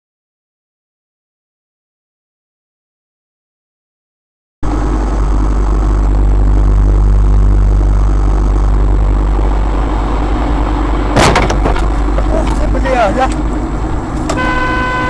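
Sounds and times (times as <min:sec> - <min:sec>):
vehicle engine and road rumble: 0:04.6 - 0:15.0
loud thump: 0:11.1 - 0:12.3.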